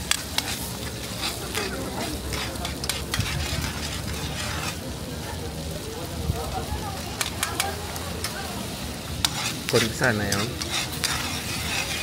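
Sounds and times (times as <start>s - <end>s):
metal ladle scraping and clinking: 0.0s - 4.8s, 9.2s - 12.0s
food sizzling in a wok: 0.0s - 12.0s.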